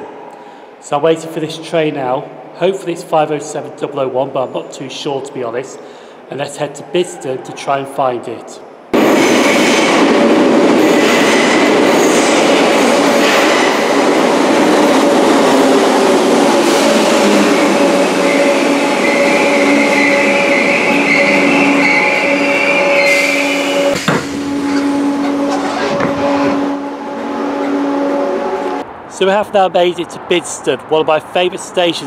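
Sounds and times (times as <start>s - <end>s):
train rumble in tunnel: 0.0s - 32.0s
wheel and brake squeal: 17.2s - 26.6s.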